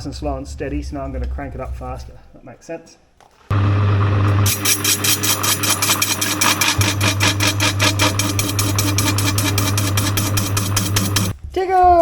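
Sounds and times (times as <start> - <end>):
lathe motor hum: 3.5 - 11.4
rapid chatter of cutting tool: 4.4 - 11.4.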